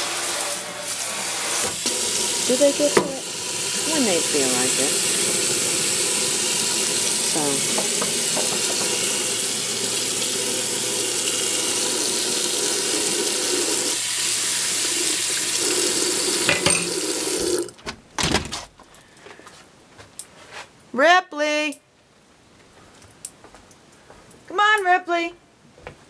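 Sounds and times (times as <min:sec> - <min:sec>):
tap running into sink: 0:01.6 - 0:03.8, 0:05.4 - 0:13.8, 0:16.4 - 0:17.6.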